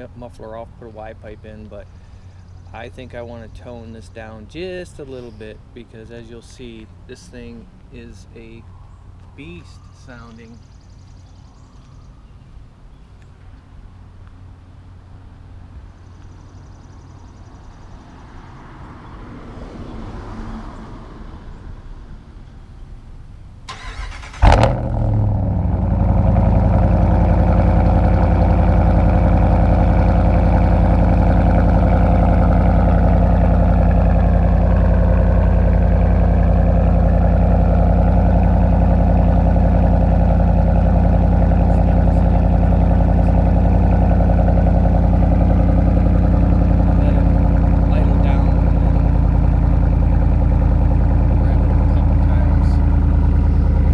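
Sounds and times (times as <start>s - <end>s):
truck engine cranking: 23.7s - 53.9s
truck engine idling: 23.7s - 53.9s.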